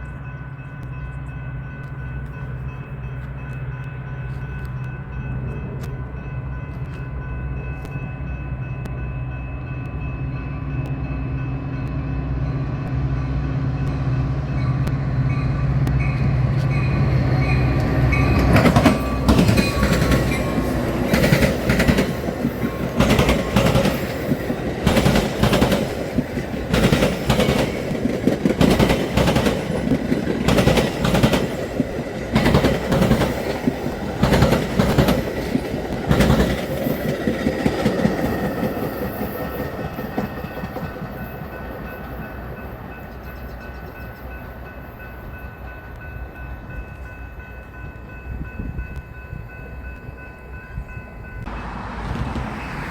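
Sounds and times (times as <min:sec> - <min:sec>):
train rumble: 0:00.0 - 0:52.9
train wheels clattering over rails: 0:17.8 - 0:43.0.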